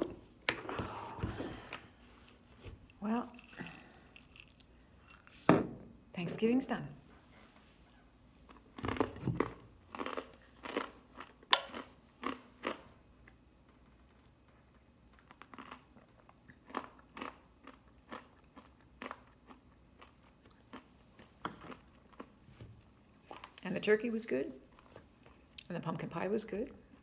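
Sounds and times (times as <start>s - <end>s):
person chewing crunchy food: 8.5s - 23.6s.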